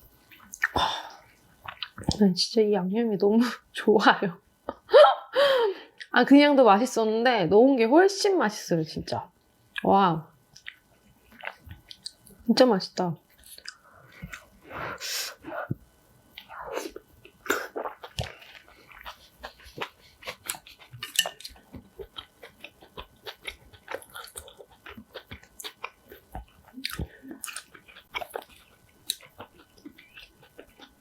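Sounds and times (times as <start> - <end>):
close chewing mouth clicks: 16.4 - 31.0.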